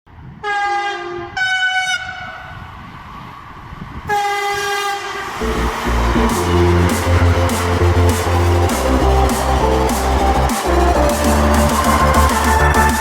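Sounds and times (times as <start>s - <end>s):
train horn blasts: 0.4s - 2.4s, 4.1s - 5.3s
music with bass line: 5.4s - 13.0s.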